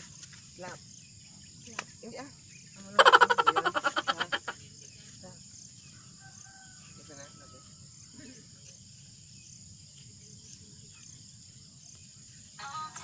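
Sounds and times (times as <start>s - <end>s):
insect chirring: 0.0s - 13.0s
faint voices: 3.0s - 5.3s
music with singing: 12.6s - 13.0s.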